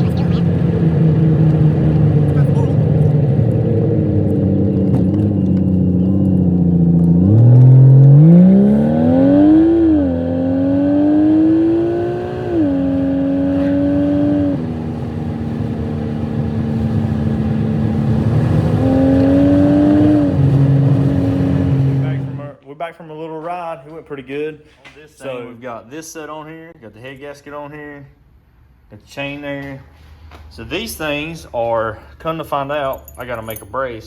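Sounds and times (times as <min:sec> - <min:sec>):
car engine accelerating: 0:00.0 - 0:22.5.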